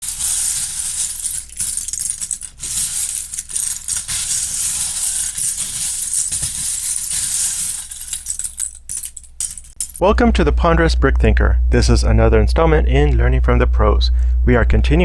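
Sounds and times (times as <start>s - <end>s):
plastic bricks rattling: 0.0s - 10.0s.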